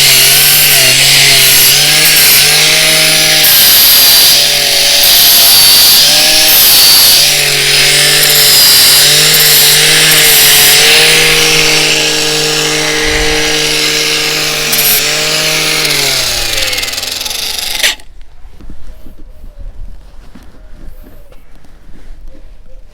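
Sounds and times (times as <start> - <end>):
angle grinder grinding: 0.0 - 18.1.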